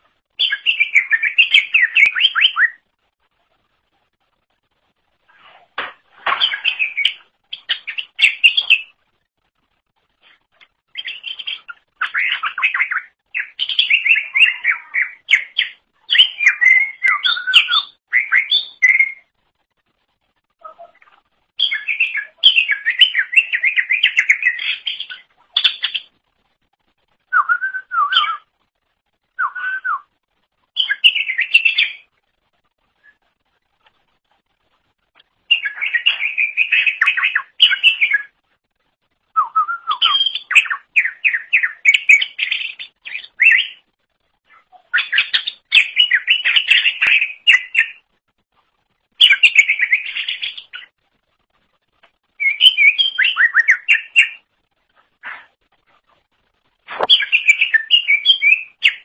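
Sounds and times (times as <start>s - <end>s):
bird singing chirps and whistles: 0.4s - 2.8s, 6.4s - 9.0s, 10.9s - 19.3s, 21.6s - 26.1s, 27.3s - 28.5s, 29.3s - 30.1s, 30.8s - 32.1s, 35.5s - 38.4s, 39.3s - 43.8s, 44.9s - 48.0s, 49.2s - 50.9s, 52.4s - 54.5s, 57.0s - 59.0s.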